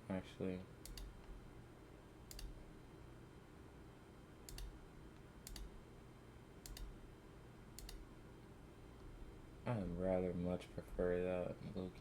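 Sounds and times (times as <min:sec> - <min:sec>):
faint low hum: 0:00.0 - 0:12.0
computer mouse clicks: 0:00.8 - 0:01.3, 0:02.3 - 0:02.6, 0:04.5 - 0:04.8, 0:05.4 - 0:05.7, 0:06.6 - 0:07.0, 0:07.8 - 0:08.0.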